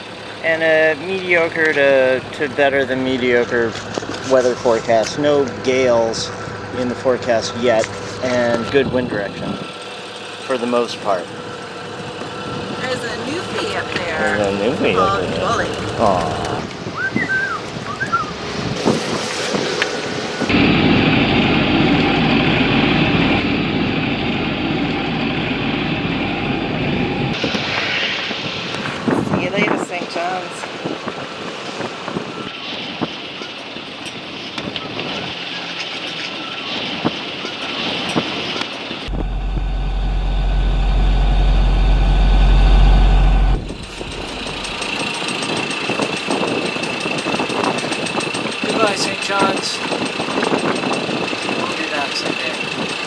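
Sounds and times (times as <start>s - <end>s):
boat diesel engine running: 0.0s - 27.4s, 39.1s - 53.0s.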